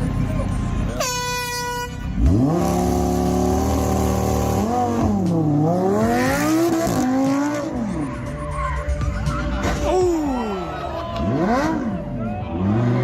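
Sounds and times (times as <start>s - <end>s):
car engine revving: 2.0s - 8.4s, 11.1s - 13.0s.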